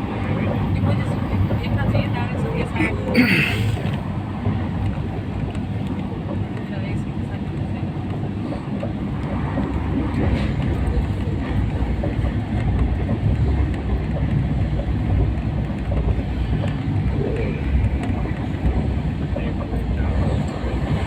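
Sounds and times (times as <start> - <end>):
train rumbling: 0.0 - 21.0.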